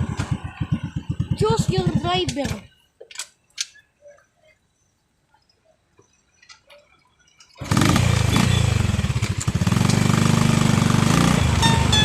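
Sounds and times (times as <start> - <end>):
motorcycle engine running: 0.0 - 2.7, 7.6 - 12.0.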